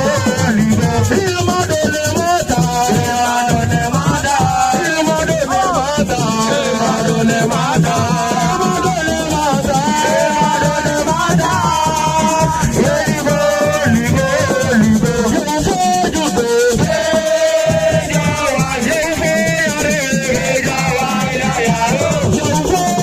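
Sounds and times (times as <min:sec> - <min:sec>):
hand percussion: 0:00.0 - 0:23.0
person singing: 0:00.0 - 0:23.0
shaken rattle: 0:00.0 - 0:23.0.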